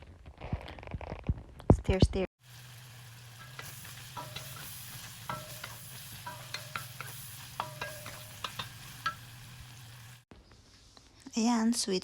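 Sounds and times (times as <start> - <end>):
bacon sizzling in a wok: 2.4 - 10.3
utensil clinking and scraping wok: 2.5 - 10.2.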